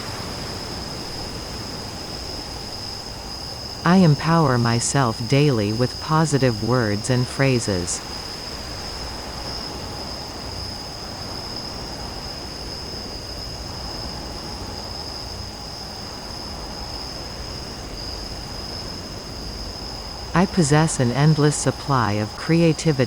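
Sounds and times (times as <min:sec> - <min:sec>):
crickets chirring: 0:00.0 - 0:23.0.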